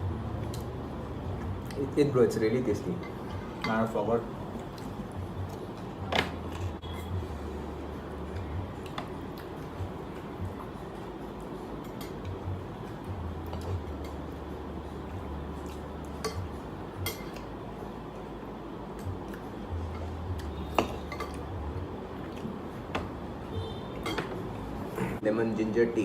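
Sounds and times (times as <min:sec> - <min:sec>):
steady low hum: 0:00.0 - 0:26.0
cutlery clinking on dishes: 0:16.2 - 0:17.5, 0:20.7 - 0:21.4, 0:24.0 - 0:24.4.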